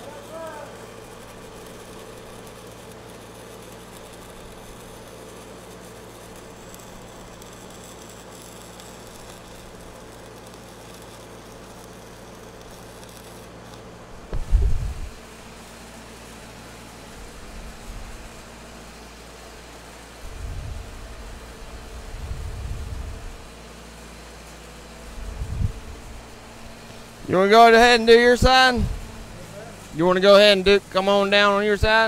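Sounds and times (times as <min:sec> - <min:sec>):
welding arc hiss and hum: 0:00.0 - 0:32.0
low thump: 0:14.3 - 0:14.8.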